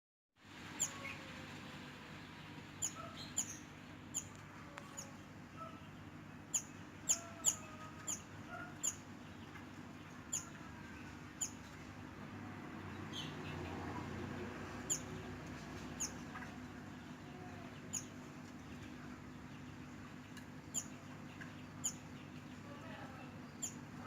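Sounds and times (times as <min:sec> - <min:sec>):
low steady hum: 0:00.4 - 0:24.0
bird chattering chirps: 0:02.8 - 0:09.6, 0:10.3 - 0:10.6, 0:11.4 - 0:11.6, 0:14.8 - 0:15.2, 0:15.9 - 0:17.2, 0:19.5 - 0:22.6, 0:23.4 - 0:24.0.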